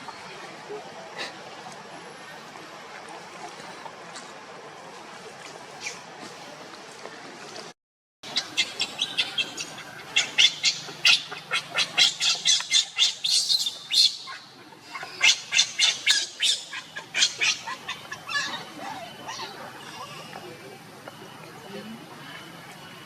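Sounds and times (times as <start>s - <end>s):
monkeys squealing: 8.3s - 20.4s.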